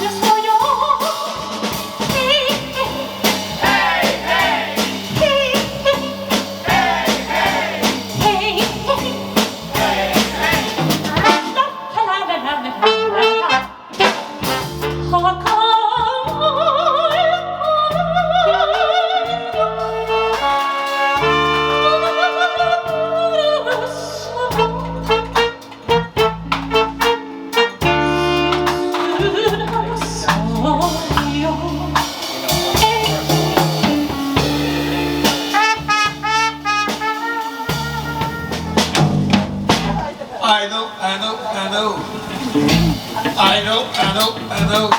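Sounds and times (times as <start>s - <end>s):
drums: 0.0s - 44.9s
bass line: 1.6s - 11.6s, 12.8s - 40.2s, 42.4s - 44.9s
brass horns melody: 2.1s - 15.4s, 19.8s - 29.7s, 32.2s - 40.1s.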